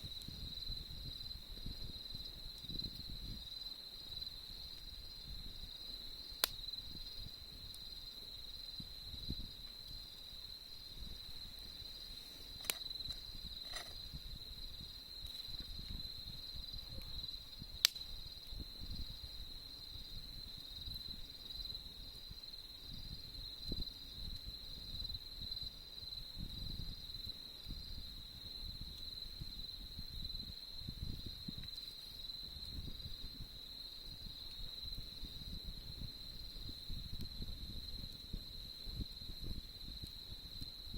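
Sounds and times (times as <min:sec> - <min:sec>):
crickets chirping: 0:00.0 - 0:40.9
sharp crack: 0:06.4 - 0:06.6, 0:17.8 - 0:18.1.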